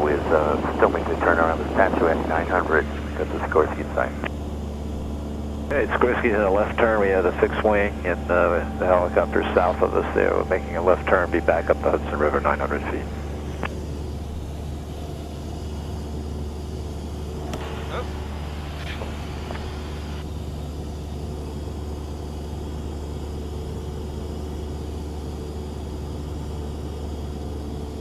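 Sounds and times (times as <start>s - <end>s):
airplane engine droning: 0.0s - 28.0s
faint voice: 17.6s - 18.1s.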